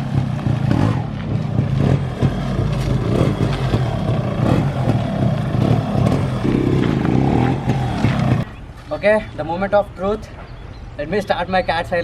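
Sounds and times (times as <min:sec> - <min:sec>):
two-stroke engine idling: 0:02.2 - 0:08.6.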